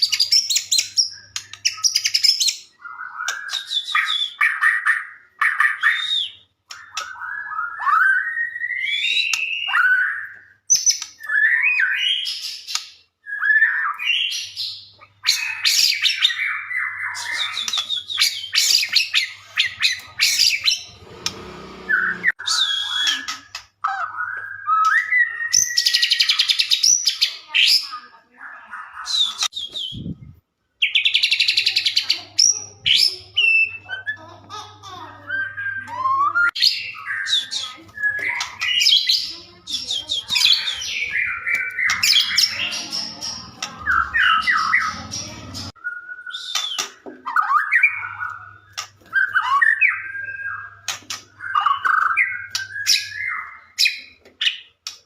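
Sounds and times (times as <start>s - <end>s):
bird whistling and trilling song: 0.0s - 21.0s, 21.8s - 27.9s, 29.0s - 34.3s, 35.2s - 55.0s.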